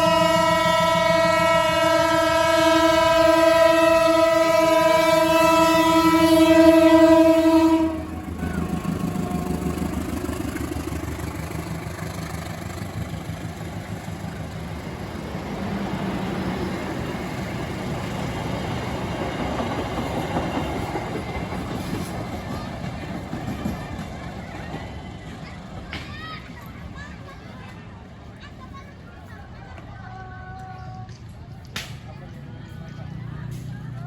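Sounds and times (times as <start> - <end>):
locomotive air horn blast: 0.0 - 10.0
train engine rumble: 0.0 - 34.0
train wheels clattering on rails: 8.1 - 27.8.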